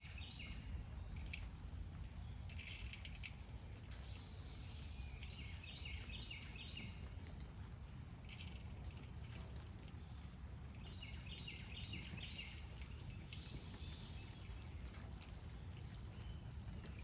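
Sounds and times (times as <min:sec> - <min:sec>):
birds chirping: 0:02.1 - 0:07.1, 0:10.0 - 0:17.0.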